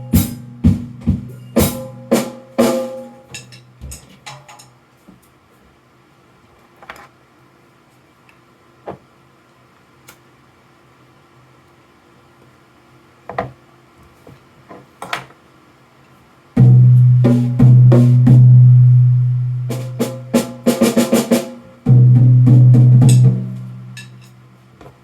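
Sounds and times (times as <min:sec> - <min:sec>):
fast drum roll: 0:00.0 - 0:03.1, 0:16.6 - 0:24.2
deep drum stroke ringing: 0:00.0 - 0:03.3, 0:16.6 - 0:24.3
drum taps and strokes: 0:00.0 - 0:04.6, 0:16.6 - 0:18.7, 0:19.7 - 0:25.0.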